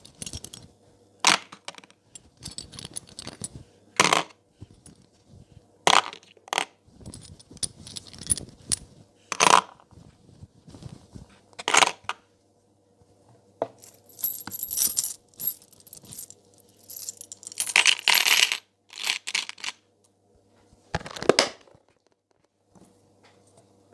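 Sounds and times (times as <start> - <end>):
metal rings clinking: 13.8 - 19.7.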